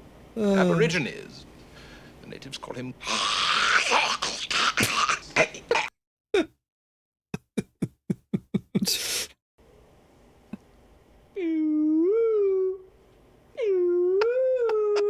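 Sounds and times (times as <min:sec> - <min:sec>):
man making mouth noises: 0:07.4 - 0:09.4.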